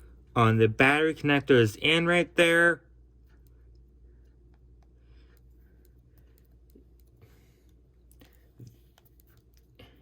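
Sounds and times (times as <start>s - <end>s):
faint clicks and taps: 3.2s - 10.0s.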